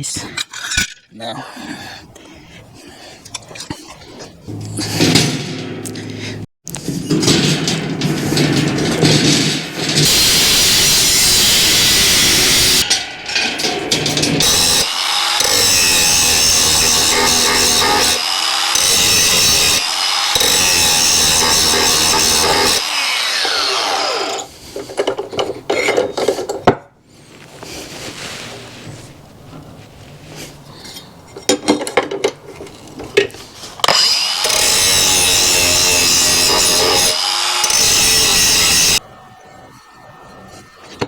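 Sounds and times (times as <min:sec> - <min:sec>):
power tool cutting: 0:10.0 - 0:12.9, 0:14.4 - 0:24.5, 0:33.8 - 0:39.0.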